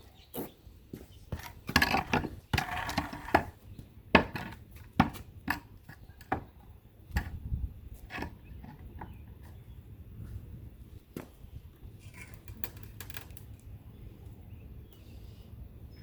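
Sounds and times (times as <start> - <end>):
wood scraping: 1.3 - 3.6.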